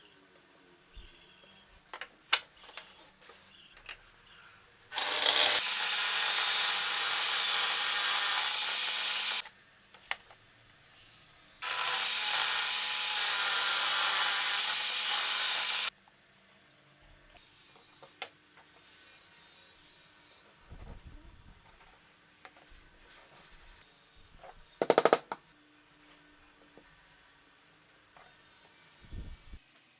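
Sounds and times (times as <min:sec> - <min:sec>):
router cutting wood: 0:04.9 - 0:09.4, 0:11.6 - 0:15.9.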